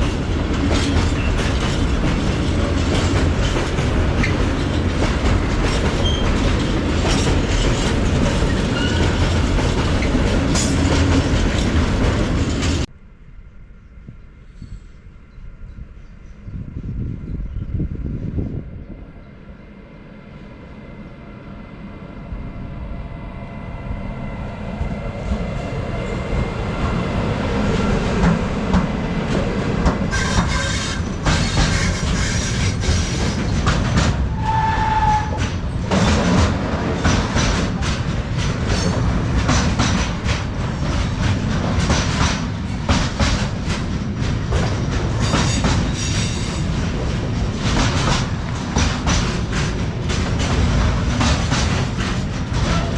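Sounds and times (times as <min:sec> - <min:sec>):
freight train wheel clatter: 0:00.0 - 0:12.9, 0:27.6 - 0:52.9.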